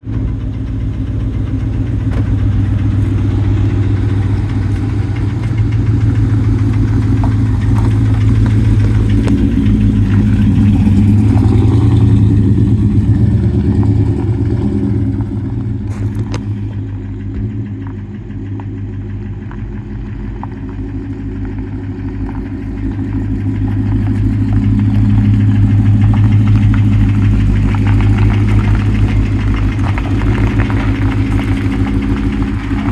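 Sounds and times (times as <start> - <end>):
pickup truck engine idling: 0.0 - 32.9.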